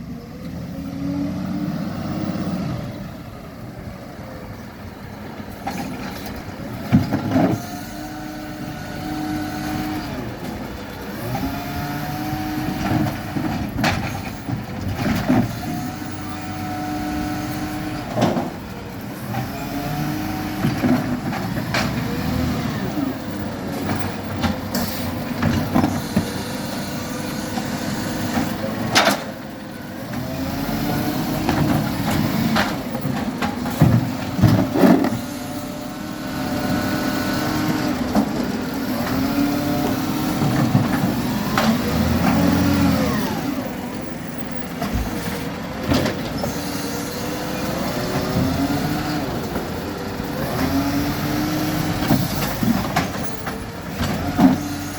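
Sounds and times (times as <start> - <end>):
garbage truck engine revving: 0.0 - 54.9.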